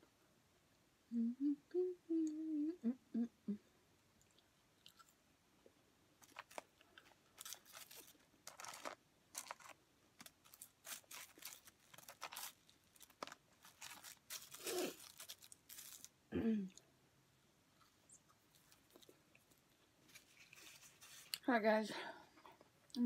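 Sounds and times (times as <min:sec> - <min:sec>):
fries chewed in crunchy bites: 0:04.2 - 0:05.2, 0:06.2 - 0:16.1
paper wrapper crinkling: 0:06.2 - 0:16.2, 0:18.5 - 0:21.4.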